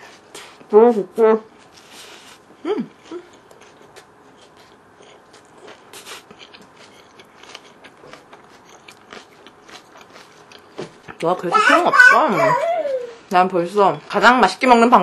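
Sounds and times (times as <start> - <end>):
chewing food: 1.5 - 12.4
wet mouth sounds: 1.8 - 11.3.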